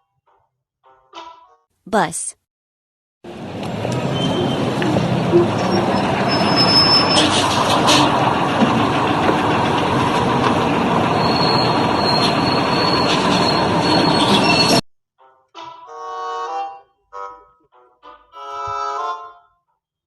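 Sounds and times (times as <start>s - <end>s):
large vehicle rumbling: 3.3s - 14.8s
high squealing tones: 5.3s - 8.1s, 11.2s - 14.8s.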